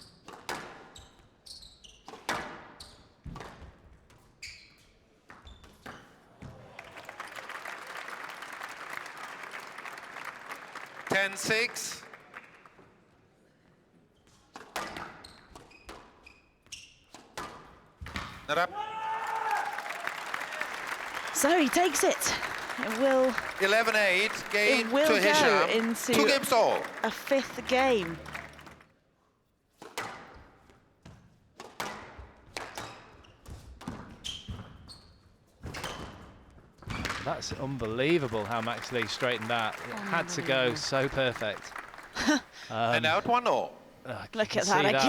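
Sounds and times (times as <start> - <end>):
shoe squeaks on court floor: 0.8 - 3.2, 4.4 - 6.2, 14.9 - 17.2, 34.1 - 36.1
shoes squeaking on court: 1.0 - 2.2, 15.1 - 17.1.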